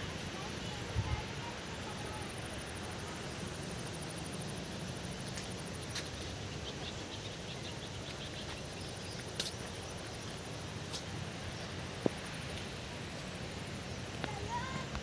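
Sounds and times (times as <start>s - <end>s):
pulsing insect trill: 0.3s - 10.8s.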